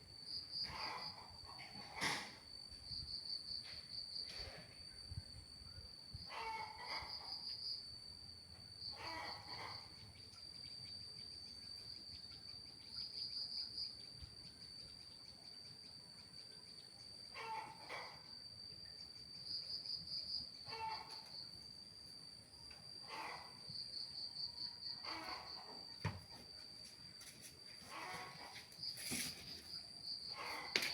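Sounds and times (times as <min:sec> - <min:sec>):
insects trilling: 0:00.0 - 0:30.9
animal calls: 0:06.3 - 0:07.4, 0:08.9 - 0:10.0, 0:17.3 - 0:18.3, 0:20.6 - 0:21.3, 0:23.0 - 0:23.6, 0:25.0 - 0:25.8, 0:27.8 - 0:28.7, 0:30.3 - 0:30.9.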